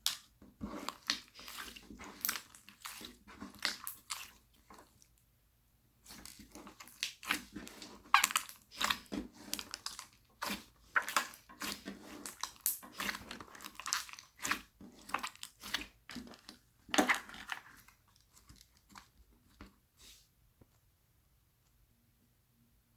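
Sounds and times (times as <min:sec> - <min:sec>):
slime crackling and squishing: 0:00.0 - 0:05.2, 0:06.0 - 0:19.2.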